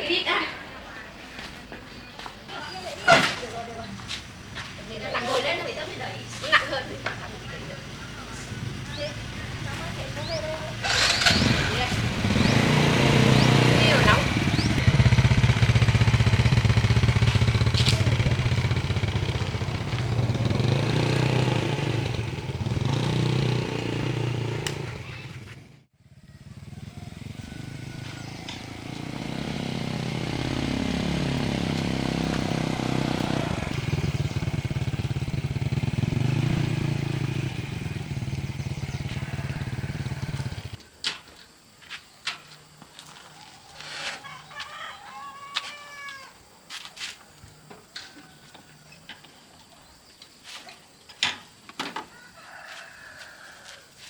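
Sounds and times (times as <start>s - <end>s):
small engine running: 7.7s - 40.8s.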